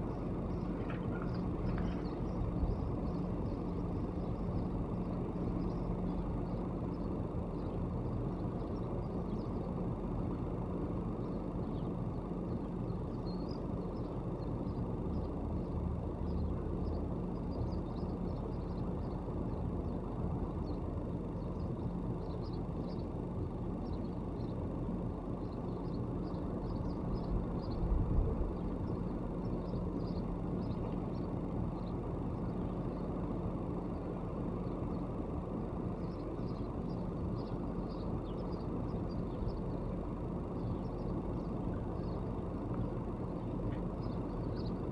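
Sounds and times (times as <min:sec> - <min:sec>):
faint bird chirps: 0:00.0 - 0:09.8, 0:25.3 - 0:33.2, 0:35.9 - 0:44.9
constant hum: 0:00.0 - 0:44.9
road traffic rumble: 0:00.0 - 0:44.9.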